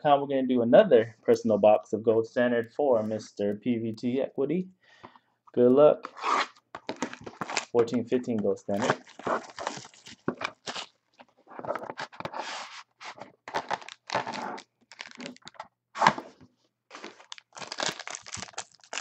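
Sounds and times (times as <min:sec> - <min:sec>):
wrapping torn and crinkled: 0:06.2 - 0:07.8, 0:08.7 - 0:11.2, 0:13.1 - 0:15.6, 0:16.9 - 0:19.0.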